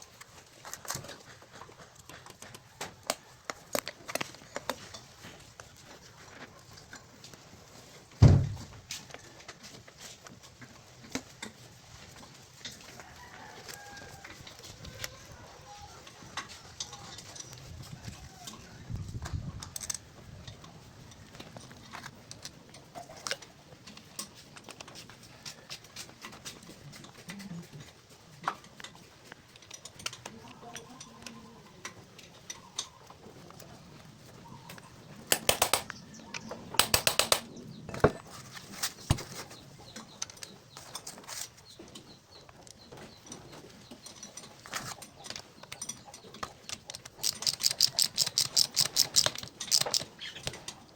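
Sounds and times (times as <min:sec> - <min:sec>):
metal tools clicking and clinking: 0:35.3 - 0:36.0, 0:36.8 - 0:37.5, 0:43.9 - 0:50.8
rapid clicking: 0:35.3 - 0:36.0, 0:36.8 - 0:37.5.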